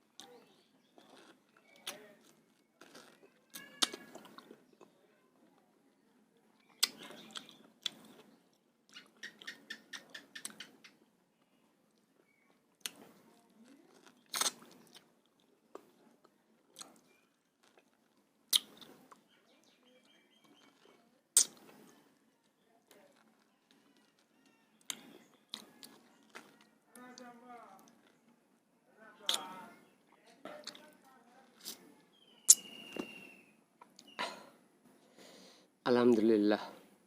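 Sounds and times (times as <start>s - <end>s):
person chewing and eating: 0.1s - 5.0s, 6.6s - 9.7s, 11.9s - 19.3s, 20.4s - 27.0s, 29.2s - 29.7s, 30.5s - 30.9s, 31.5s - 31.8s
sharp mouth clicks: 21.4s - 21.8s, 29.2s - 29.6s, 32.5s - 33.0s.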